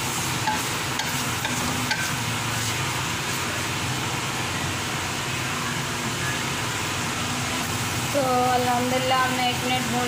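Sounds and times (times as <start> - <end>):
meat and potatoes sizzling: 0.0 - 5.5.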